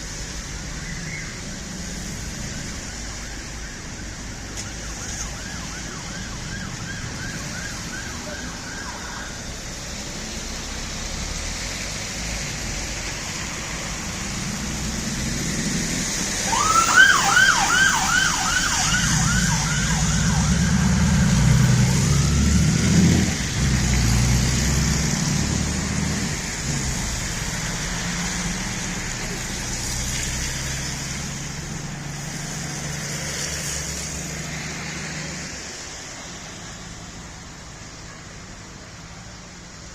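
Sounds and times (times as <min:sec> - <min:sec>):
traffic hiss: 0:00.0 - 0:39.9
emergency siren yelping: 0:04.6 - 0:09.6, 0:16.3 - 0:23.3
vehicle engine rumbling past: 0:10.1 - 0:36.0.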